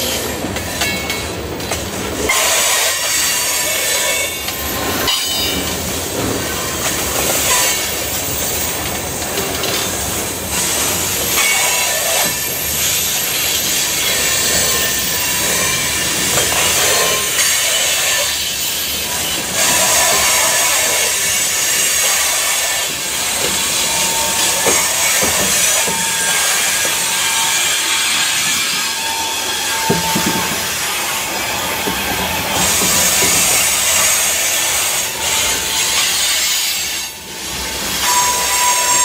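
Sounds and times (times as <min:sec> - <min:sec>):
freight train wheels rumbling: 0:00.0 - 0:39.0
wheel squeal: 0:10.5 - 0:39.0.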